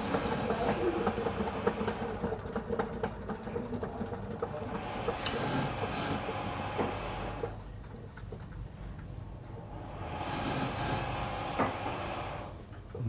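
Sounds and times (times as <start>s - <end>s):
wood lathe motor hum: 0.0s - 2.9s, 4.6s - 7.5s, 10.0s - 12.5s.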